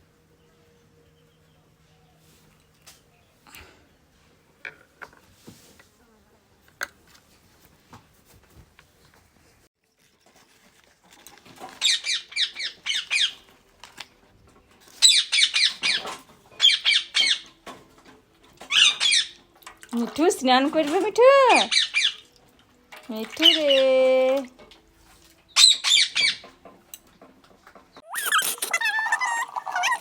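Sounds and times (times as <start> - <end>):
parrot screeching: 28.0 - 30.0.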